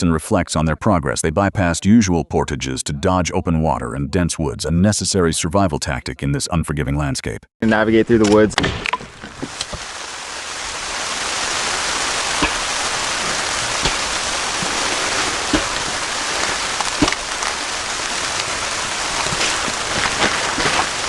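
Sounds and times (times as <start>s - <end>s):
steaks sizzling in a frying pan: 9.5s - 19.8s
fat popping: 11.3s - 21.0s.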